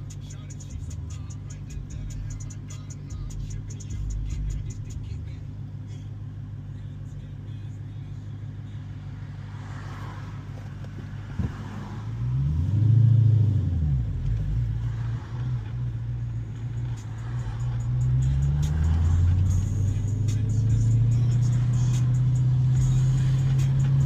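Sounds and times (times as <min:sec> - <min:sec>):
car engine rumbling and revving: 0:00.0 - 0:24.0.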